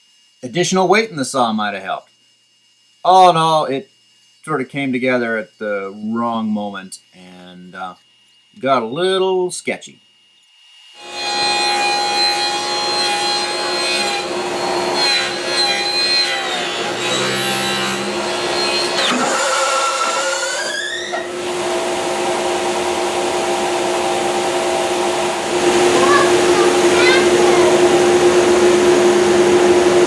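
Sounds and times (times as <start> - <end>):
table saw cutting wood: 10.6 - 30.0.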